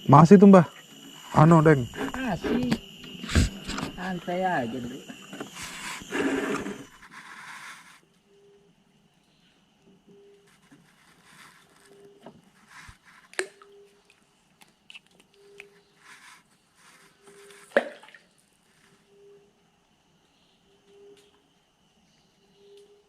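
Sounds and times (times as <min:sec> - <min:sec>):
steady high tone: 0:00.0 - 0:07.0.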